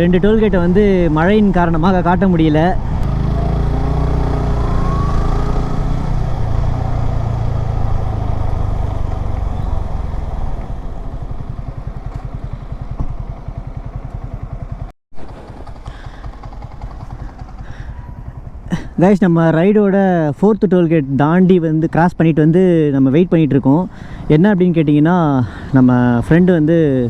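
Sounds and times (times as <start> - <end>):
motorcycle engine idling putter: 0.0 - 19.0
motorcycle engine running: 0.0 - 19.0
road and wind noise: 0.0 - 27.0.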